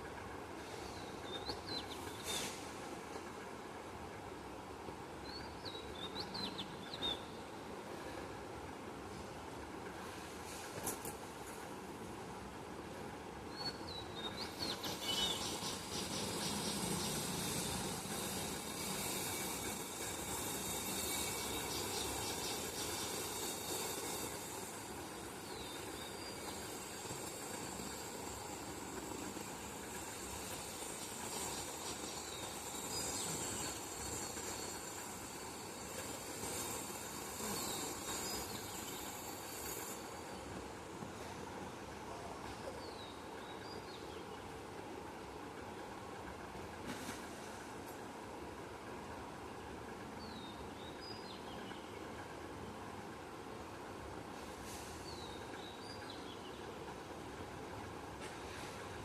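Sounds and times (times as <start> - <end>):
steady hiss: 0.0 - 5.0, 5.9 - 44.0, 44.8 - 59.0
high hiss: 14.4 - 42.1.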